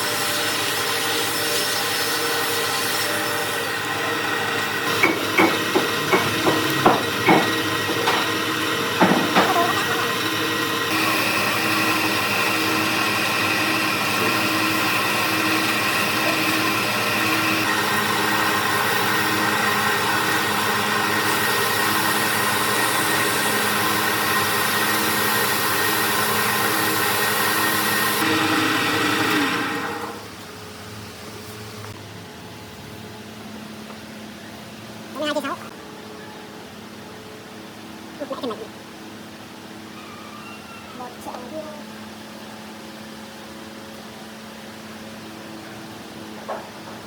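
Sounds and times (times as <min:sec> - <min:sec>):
wood lathe motor hum: 0:00.0 - 0:30.3
sharp knocks: 0:04.9 - 0:08.4, 0:09.0 - 0:09.6.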